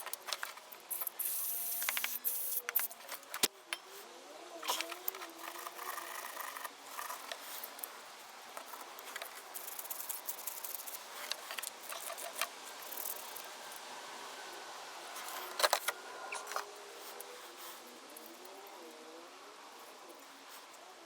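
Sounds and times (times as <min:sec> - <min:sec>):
small metal parts and tools clicking: 0:00.0 - 0:04.0, 0:04.6 - 0:07.9, 0:08.6 - 0:13.5.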